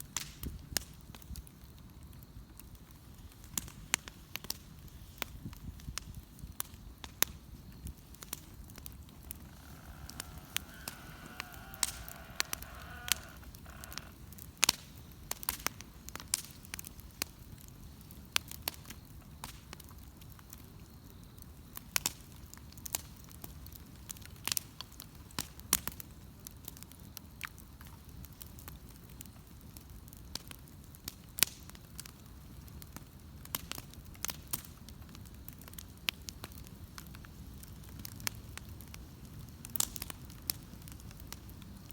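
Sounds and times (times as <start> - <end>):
bonfire crackling: 0.0 - 41.9
sharp pops: 8.2 - 14.8.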